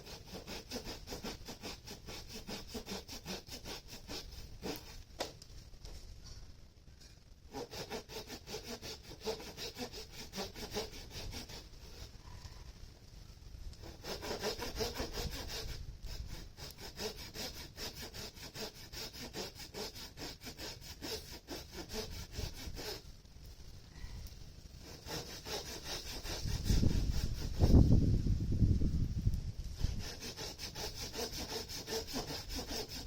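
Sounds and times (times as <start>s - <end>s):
hand saw cutting wood: 0.0s - 5.0s, 7.5s - 12.1s, 13.8s - 23.0s, 24.8s - 27.8s, 29.8s - 33.0s.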